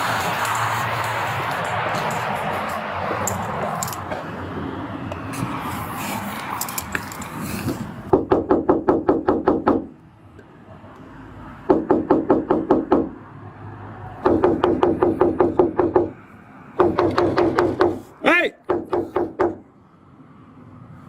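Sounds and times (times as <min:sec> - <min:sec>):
rapid knocking on door: 0:08.1 - 0:09.9, 0:11.7 - 0:13.2, 0:14.2 - 0:16.2, 0:16.8 - 0:18.0, 0:18.7 - 0:19.6.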